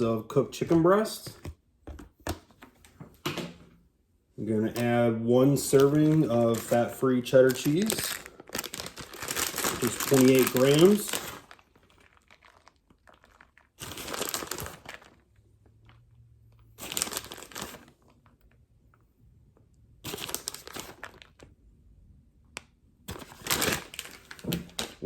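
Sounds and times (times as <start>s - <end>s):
plastic packaging crinkling: 4.7s - 18.5s, 20.1s - 21.5s, 23.1s - 25.0s.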